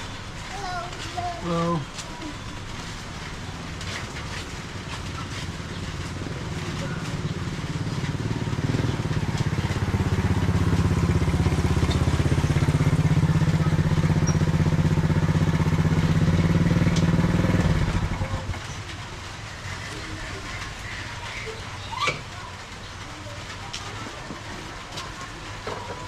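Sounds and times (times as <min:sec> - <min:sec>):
motorcycle engine running: 0:02.6 - 0:21.2.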